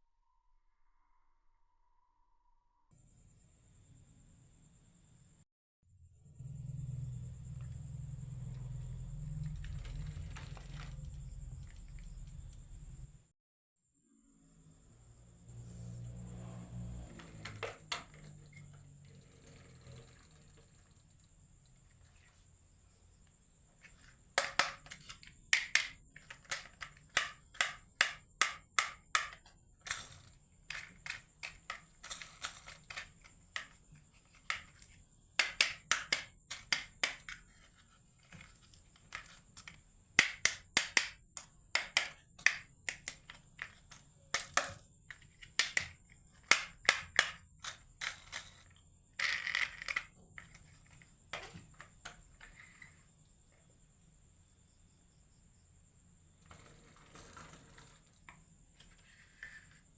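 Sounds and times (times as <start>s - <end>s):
marbles clicking down wooden run: 41.8s - 51.0s.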